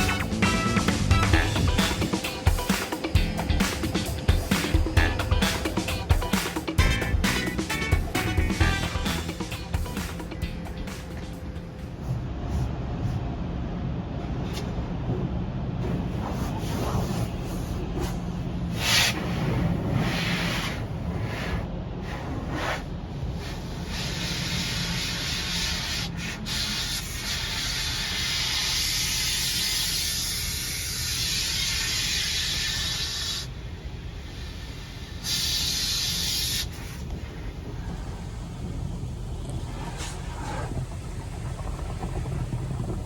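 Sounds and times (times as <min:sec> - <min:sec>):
water jets spraying: 0:00.0 - 0:11.6, 0:34.3 - 0:37.3
steady low rumble: 0:00.0 - 0:23.4, 0:37.0 - 0:43.0.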